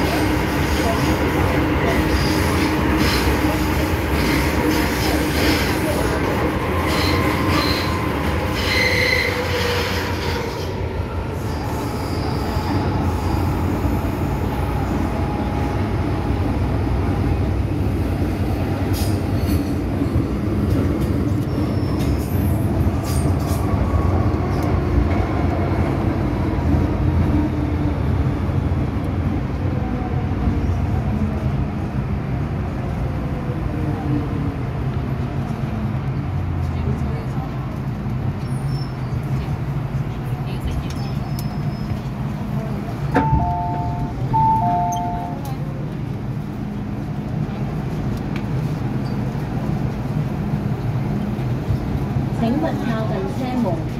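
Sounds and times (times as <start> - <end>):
high wheel squeals: 6.8 - 10.6.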